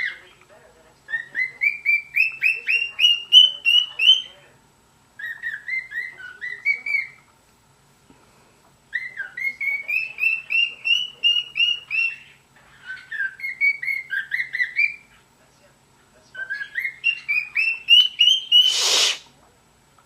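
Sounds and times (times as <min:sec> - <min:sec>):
cockatiel whistling: 0:16.4 - 0:19.2.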